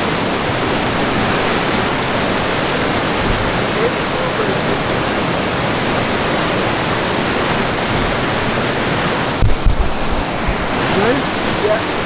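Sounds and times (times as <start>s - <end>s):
falling water rushing: 0.0s - 12.0s
low thumps: 0.9s - 3.8s, 9.3s - 12.0s.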